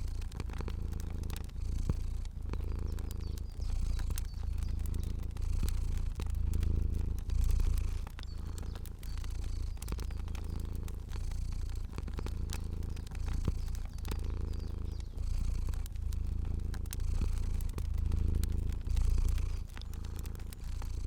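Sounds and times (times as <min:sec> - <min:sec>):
cat purring: 0:00.0 - 0:21.0
fire crackling: 0:00.0 - 0:21.0.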